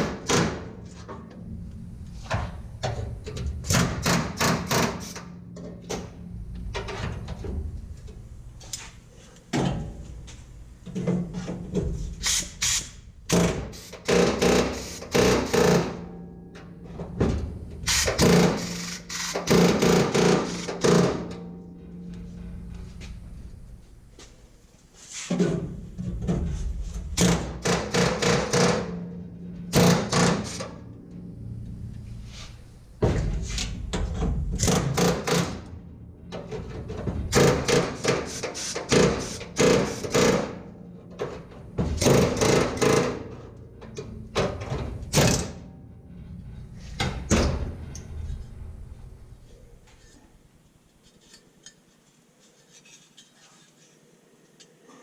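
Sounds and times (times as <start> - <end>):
hammer striking sheet steel: 3.6 - 6.2, 12.2 - 16.3, 17.8 - 22.2, 26.9 - 30.9, 33.0 - 40.8.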